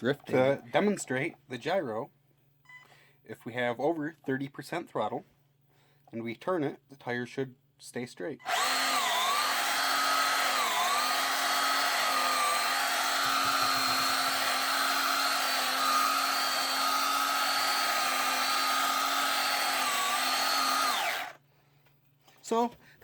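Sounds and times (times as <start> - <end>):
electric motor whining: 8.5 - 21.4.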